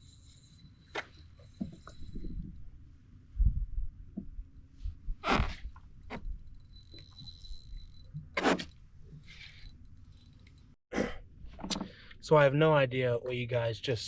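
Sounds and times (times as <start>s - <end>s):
wind rumbling on microphone: 1.7s - 6.5s.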